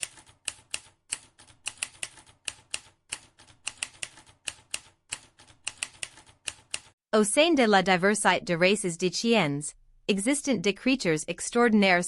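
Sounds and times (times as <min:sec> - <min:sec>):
keyboard typing clicks: 0:00.0 - 0:07.0.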